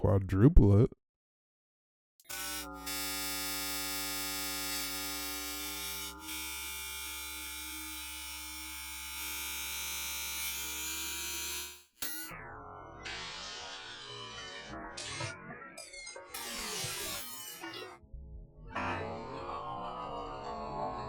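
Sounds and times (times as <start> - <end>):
buzzy drone of steady tones: 2.3 - 10.6.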